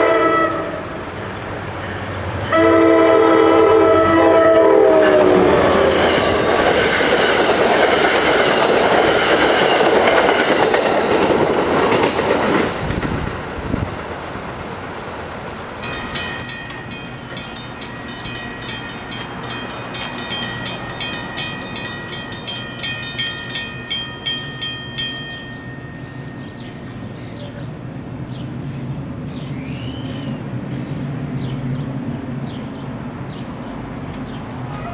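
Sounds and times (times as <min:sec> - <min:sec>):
commuter train passing: 0:00.0 - 0:34.9
crossing warning bell ringing: 0:15.8 - 0:27.8.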